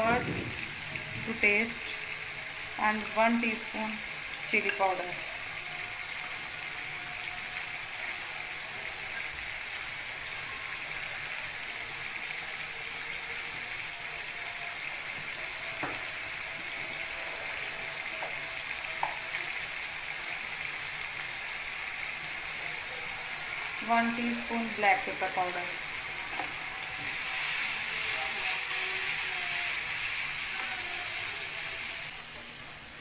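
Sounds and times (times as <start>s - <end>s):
sauce sizzling in a pan: 0.0s - 33.0s.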